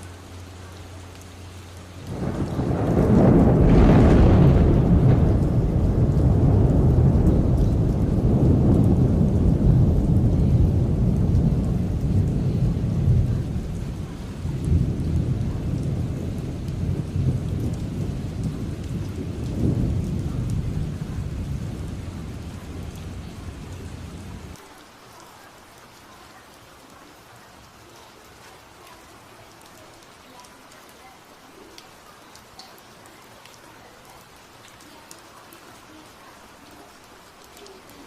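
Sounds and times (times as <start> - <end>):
heavy rain: 0.0 - 38.0
rolling thunder: 2.0 - 24.6.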